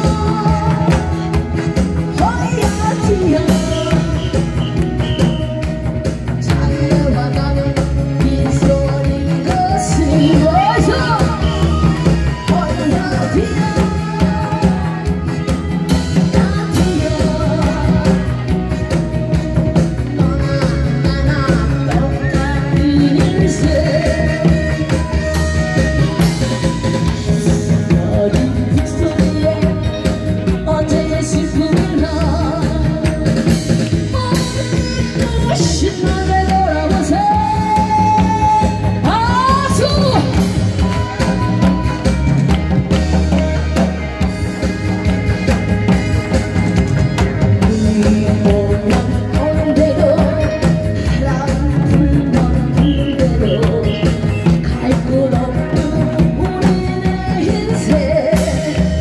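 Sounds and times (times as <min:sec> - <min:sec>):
person singing through a pa: 0:00.0 - 0:42.3, 0:47.4 - 0:59.0
backing track with drum and bass: 0:00.0 - 0:59.0.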